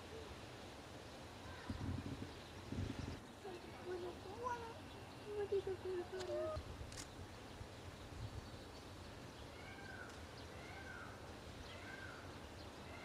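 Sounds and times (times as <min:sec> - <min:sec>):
small birds chirping: 0:01.0 - 0:13.0.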